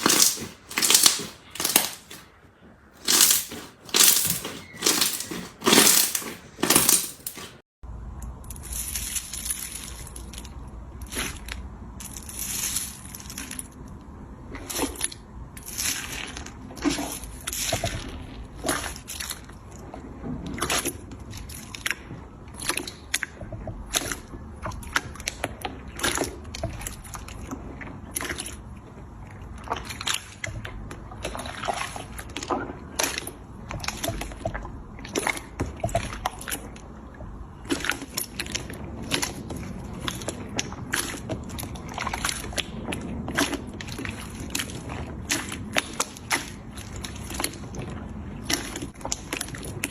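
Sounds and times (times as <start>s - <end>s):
slime squelching: 0.0s - 2.2s.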